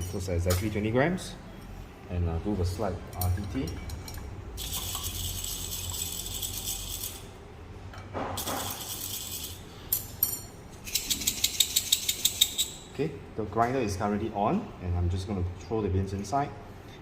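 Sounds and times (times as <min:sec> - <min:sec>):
coffee beans rattling in cup: 0:04.6 - 0:07.3, 0:08.4 - 0:09.6, 0:10.9 - 0:12.8.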